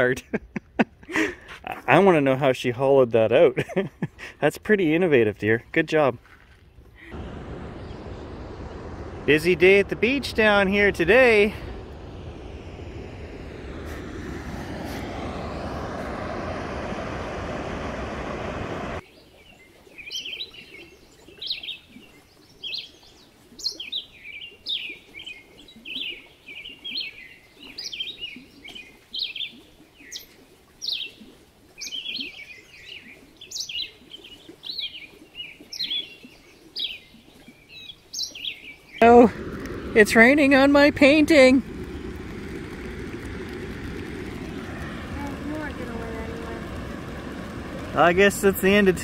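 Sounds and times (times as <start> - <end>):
steady rushing noise: 7.0 - 19.0, 39.0 - 49.0.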